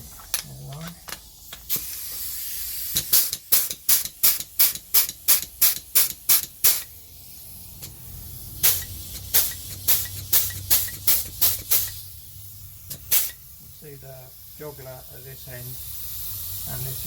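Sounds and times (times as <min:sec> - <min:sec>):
compressed air hiss: 0:01.5 - 0:17.0
pneumatic tool jaws stroking: 0:01.7 - 0:06.9, 0:08.6 - 0:12.0, 0:12.9 - 0:13.4.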